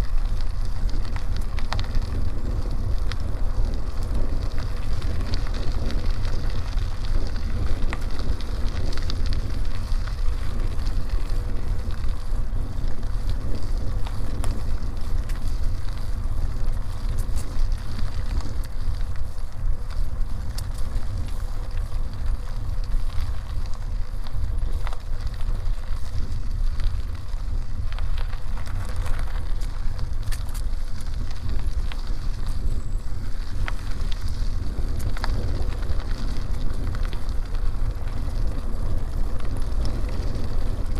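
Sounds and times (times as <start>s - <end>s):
tyres crackling on road: 0.0s - 40.9s
wind rumbling on microphone: 0.0s - 40.9s
small clicks: 27.8s - 32.7s.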